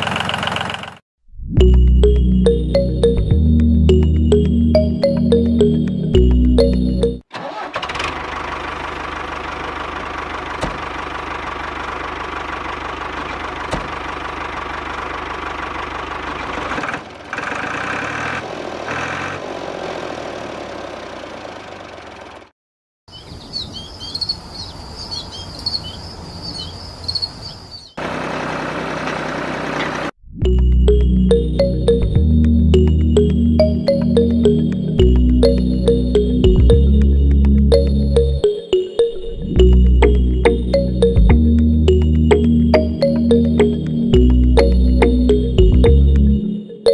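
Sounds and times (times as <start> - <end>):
high twittering chirps: 23.1 - 28.0.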